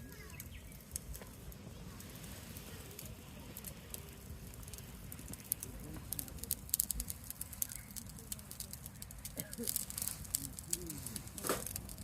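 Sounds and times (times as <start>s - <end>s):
campfire crackling: 0.0s - 12.0s
sharp pops of burning wood: 0.0s - 12.0s.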